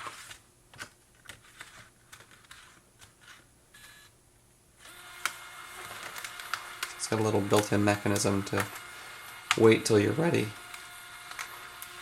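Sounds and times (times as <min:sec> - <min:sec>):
paper handling clicks: 0:00.0 - 0:03.5, 0:04.8 - 0:12.0
scanner feed motor humming: 0:04.9 - 0:12.0.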